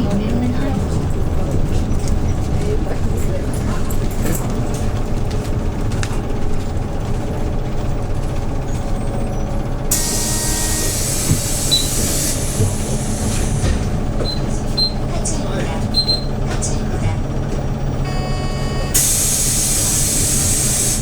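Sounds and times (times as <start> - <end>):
bus engine running: 0.0 - 21.0
compressed air hiss: 9.9 - 13.6, 19.0 - 21.0.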